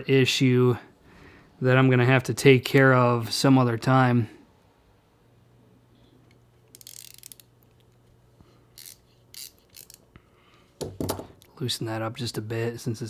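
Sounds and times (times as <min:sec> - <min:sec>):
hand ratchet clicking: 0:06.7 - 0:07.5, 0:08.8 - 0:10.0.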